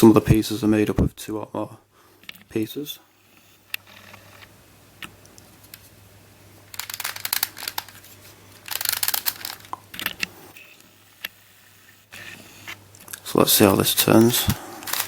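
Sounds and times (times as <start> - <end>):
plastic puzzle clicking and rustling: 6.7 - 10.3, 13.0 - 15.0.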